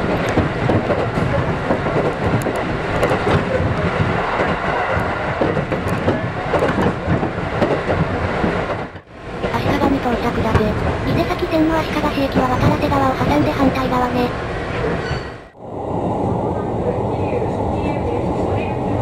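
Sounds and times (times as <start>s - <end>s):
wheels clickety-clack on rail joints: 0.0s - 14.2s
train running rumble: 0.0s - 15.2s.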